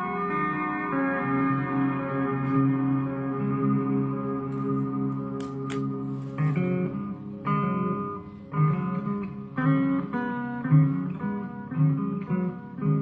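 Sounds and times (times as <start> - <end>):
guitar picking a riff: 0.0 - 13.0.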